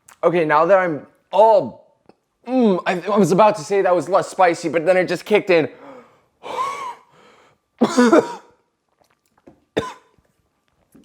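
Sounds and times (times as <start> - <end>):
man coughing: 6.5 - 7.1, 7.8 - 8.6, 9.8 - 10.1.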